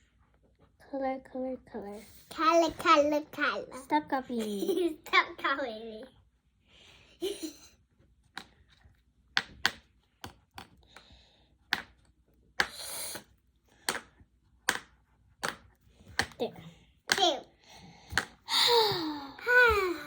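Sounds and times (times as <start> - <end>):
drawing supplies tapping on table: 9.3 - 10.8.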